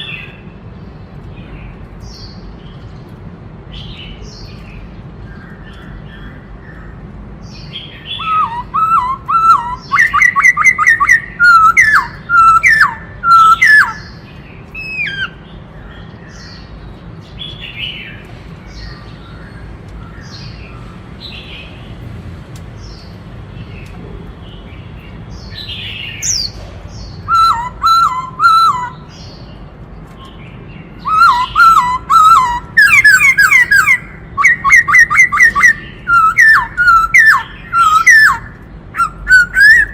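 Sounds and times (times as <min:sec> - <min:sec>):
bird singing whistled notes: 0:07.5 - 0:15.4, 0:25.3 - 0:29.5, 0:30.8 - 0:39.9.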